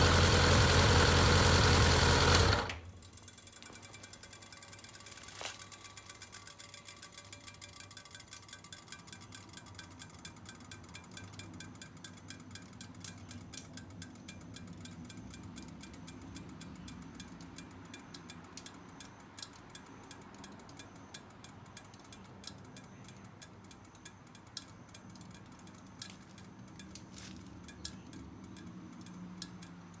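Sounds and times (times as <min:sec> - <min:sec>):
motorcycle engine idling: 0:00.0 - 0:18.0
metallic tinkling from muffler: 0:00.0 - 0:30.0.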